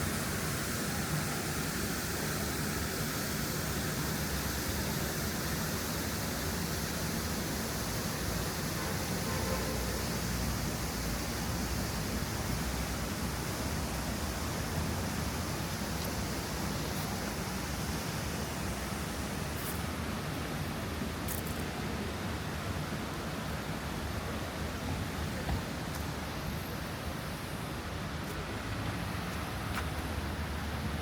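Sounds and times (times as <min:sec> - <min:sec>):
steady hiss: 0:00.0 - 0:31.0.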